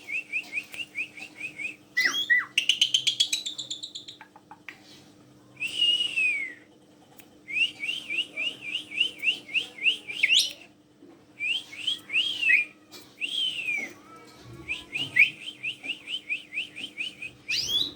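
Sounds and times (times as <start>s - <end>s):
starling whistling: 14.7s - 17.9s.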